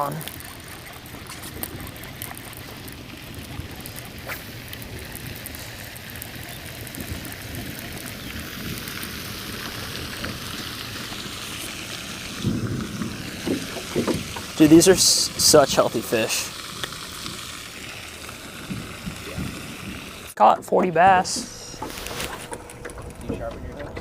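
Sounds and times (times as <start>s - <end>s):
wind noise on microphone: 0.0s - 14.6s, 18.5s - 20.3s.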